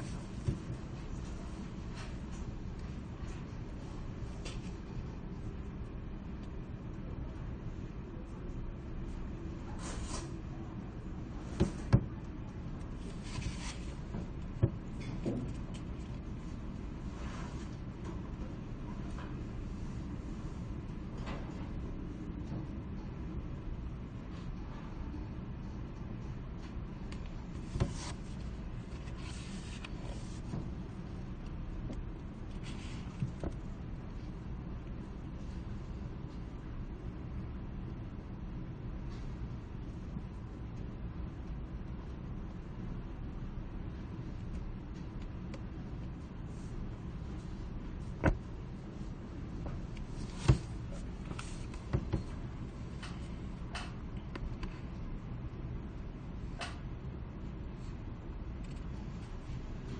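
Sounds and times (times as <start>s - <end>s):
steady low hum: 0.0s - 59.9s
paper rustling: 13.0s - 14.0s, 27.6s - 30.5s.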